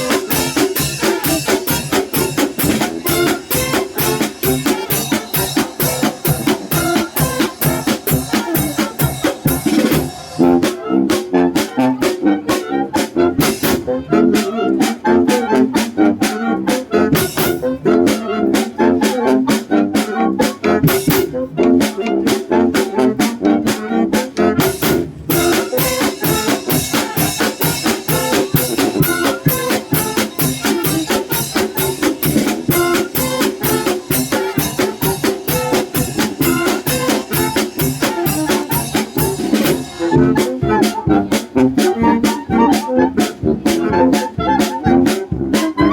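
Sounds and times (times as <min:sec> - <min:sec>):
fast drum beat: 0:00.0 - 0:10.7, 0:24.6 - 0:40.6
wind band playing a polka: 0:00.0 - 0:45.9.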